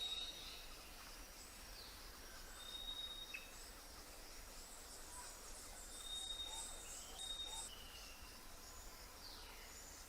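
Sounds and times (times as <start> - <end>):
soft steady hiss: 0.0 - 10.0.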